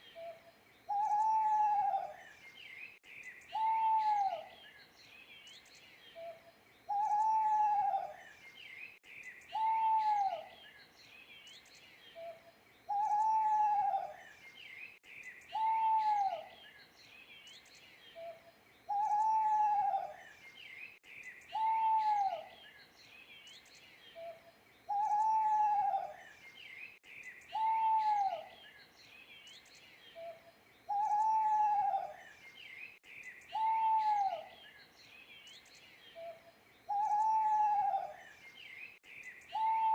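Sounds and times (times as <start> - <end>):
small birds chirping: 0.0 - 39.9
owl hooting: 0.9 - 2.2, 3.5 - 4.5, 6.9 - 8.2, 9.5 - 10.5, 12.2 - 14.2, 15.5 - 16.5, 18.2 - 20.2, 21.5 - 22.5, 24.2 - 26.2, 27.5 - 28.5, 30.2 - 32.2, 33.5 - 34.6, 36.2 - 38.2, 39.5 - 39.9.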